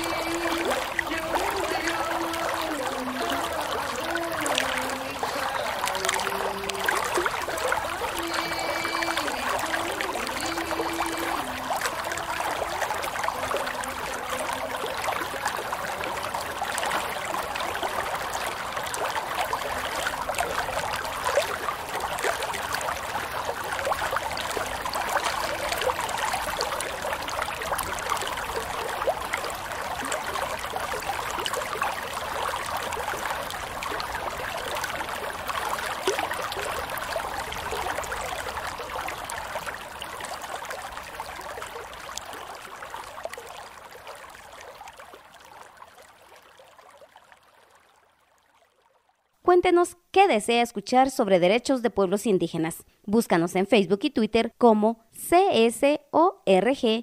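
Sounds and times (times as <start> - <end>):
water trickling and splashing: 0.0 - 49.5.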